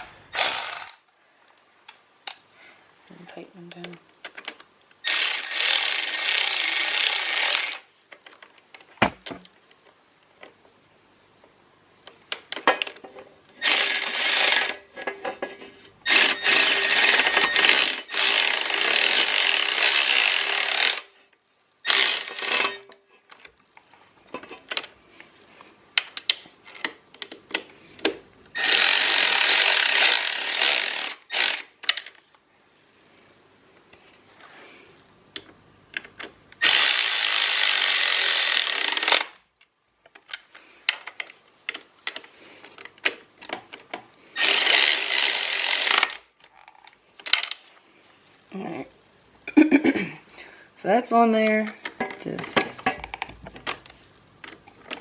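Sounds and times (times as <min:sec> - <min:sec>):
power drill bursts: 0:00.0 - 0:01.0, 0:05.0 - 0:07.8, 0:13.6 - 0:14.8, 0:16.0 - 0:21.1, 0:21.8 - 0:22.8, 0:28.6 - 0:31.7, 0:36.6 - 0:39.4, 0:44.4 - 0:46.2.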